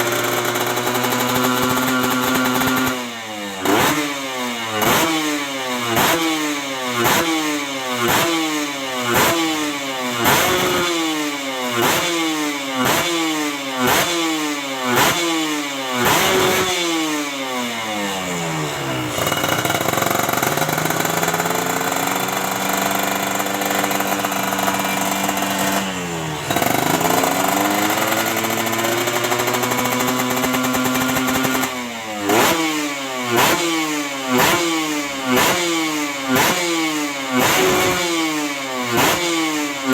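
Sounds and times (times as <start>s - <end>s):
motorcycle revving: 0.0s - 39.9s.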